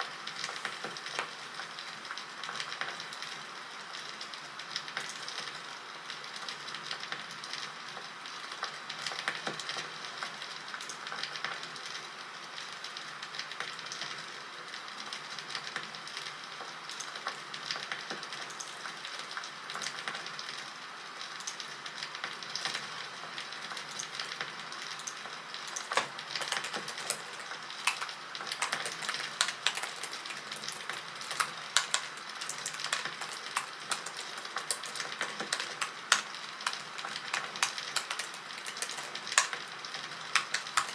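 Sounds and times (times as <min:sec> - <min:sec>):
bonfire crackling and popping: 0:25.0 - 0:40.9.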